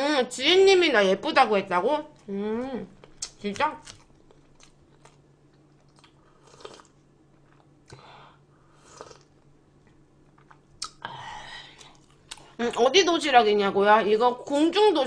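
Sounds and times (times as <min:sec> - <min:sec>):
chewing and crunching food: 0:03.0 - 0:08.0, 0:08.8 - 0:11.0, 0:11.8 - 0:12.8
small mouth clicks: 0:10.4 - 0:11.0.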